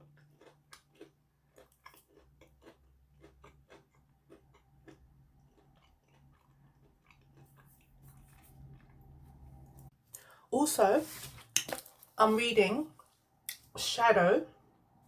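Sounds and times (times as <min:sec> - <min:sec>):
person chewing crunchy crackers: 0:00.0 - 0:10.4.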